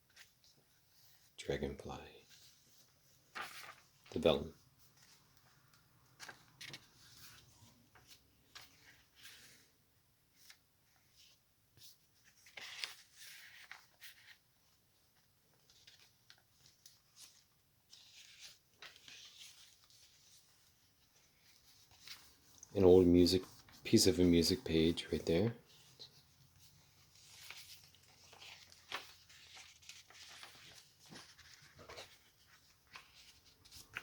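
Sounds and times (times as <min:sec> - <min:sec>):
paper rustling and crinkling: 0:02.3 - 0:09.7, 0:10.3 - 0:34.0.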